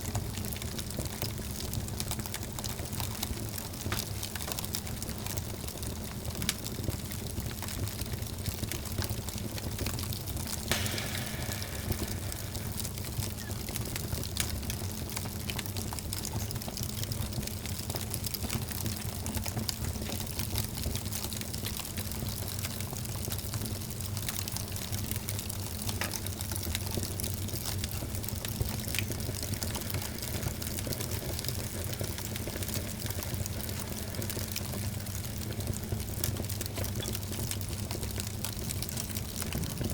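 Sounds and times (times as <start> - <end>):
fire crackling and popping: 0.0 - 39.9
low rumble of flames: 0.0 - 39.9
fire hissing: 10.7 - 14.4, 27.5 - 36.9.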